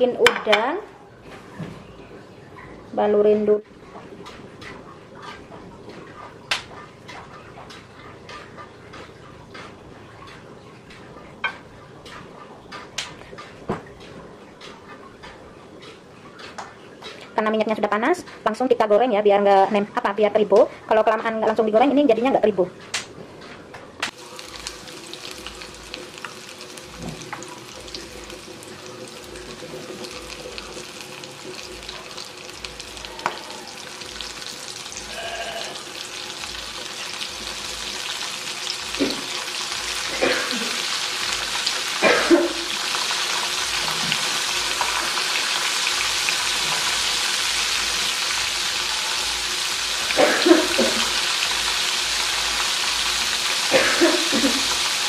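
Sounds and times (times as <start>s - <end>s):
shrimp sizzling in hot oil: 24.1s - 55.0s.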